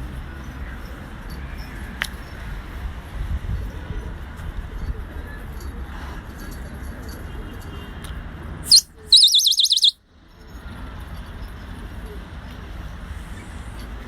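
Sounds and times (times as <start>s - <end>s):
high whistled warbling call: 8.7s - 10.0s.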